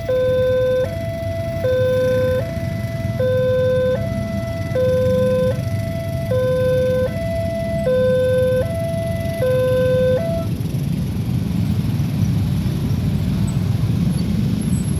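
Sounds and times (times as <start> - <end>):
level crossing two-tone alarm: 0.0 - 11.1
road traffic rumble: 0.0 - 14.9.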